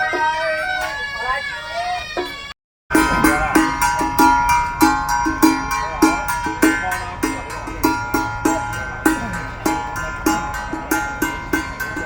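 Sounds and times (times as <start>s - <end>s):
drum beating: 2.2s - 12.0s
ringing metal percussion: 2.9s - 12.0s.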